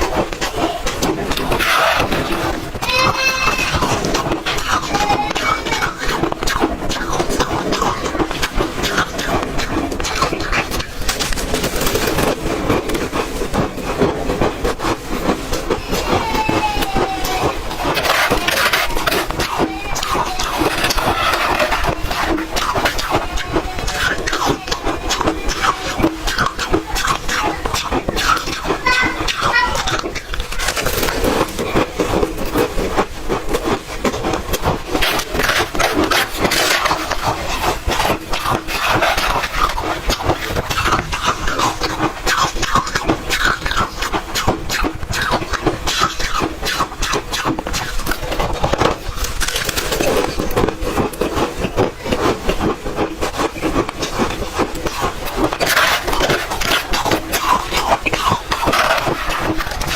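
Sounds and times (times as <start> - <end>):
ice being chewed: 0.0 - 59.9.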